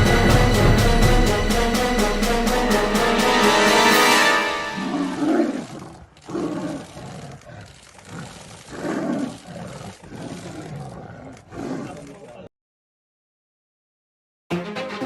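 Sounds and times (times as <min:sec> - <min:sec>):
big cat roaring and growling: 0:04.8 - 0:12.4.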